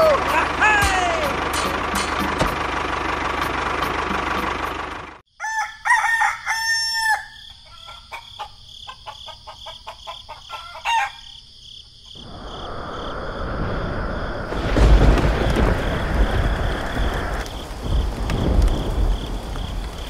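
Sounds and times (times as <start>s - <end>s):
steady engine-like noise: 0.0s - 5.2s
rooster crowing: 5.3s - 11.4s.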